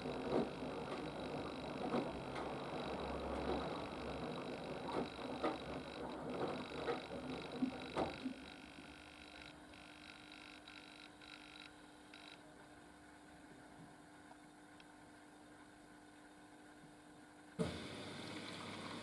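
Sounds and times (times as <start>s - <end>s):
washing machine drum tumbling laundry: 0.0s - 8.4s.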